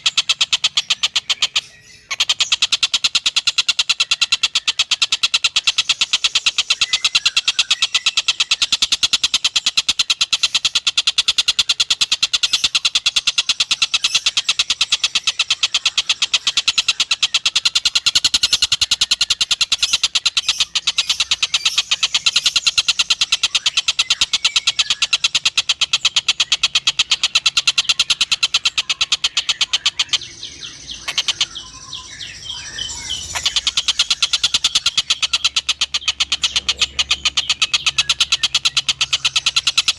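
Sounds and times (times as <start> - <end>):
kingfisher rattling chatter: 32.7 - 39.9.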